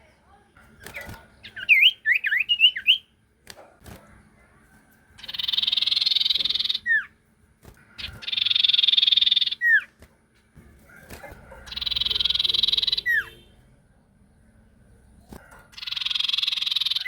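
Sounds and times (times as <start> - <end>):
buzzing bird trills: 5.2 - 10.0, 11.0 - 13.6, 15.7 - 17.0.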